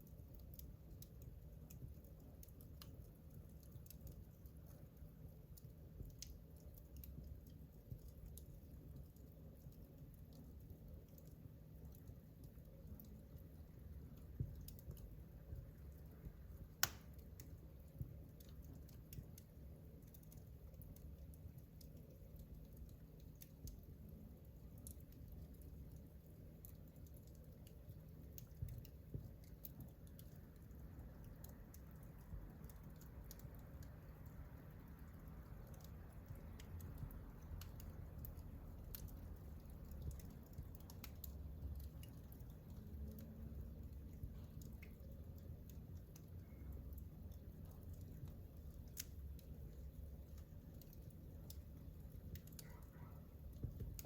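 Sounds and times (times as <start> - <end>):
low steady rumble: 0.0 - 54.0
wood fire crackling: 0.0 - 54.0
fire pops: 14.0 - 24.0, 43.6 - 54.0.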